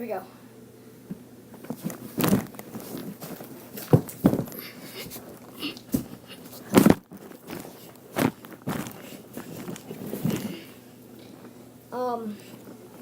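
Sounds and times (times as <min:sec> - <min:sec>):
small knocks and rustling: 0:01.1 - 0:11.6
body thumping on a floor: 0:01.6 - 0:10.6.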